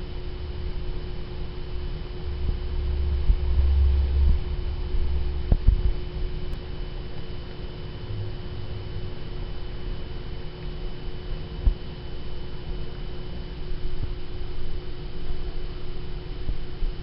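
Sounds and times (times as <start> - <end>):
low rumble: 0.0 - 10.4
electrical hum: 0.0 - 17.0.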